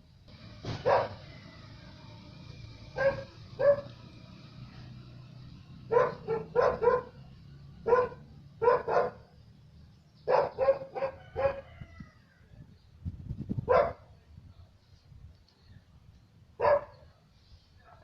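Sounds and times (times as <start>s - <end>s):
dog barking: 0.8s - 1.2s, 2.9s - 4.0s, 5.9s - 7.2s, 7.8s - 9.3s, 10.2s - 11.6s, 13.7s - 14.1s, 16.6s - 17.0s.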